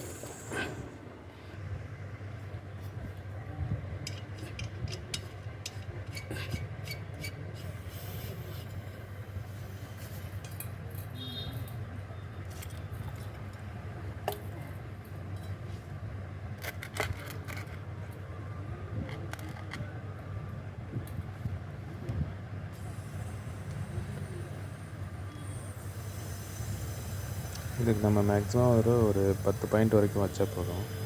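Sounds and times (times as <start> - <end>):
refrigerator compressor humming: 22.7 - 31.0.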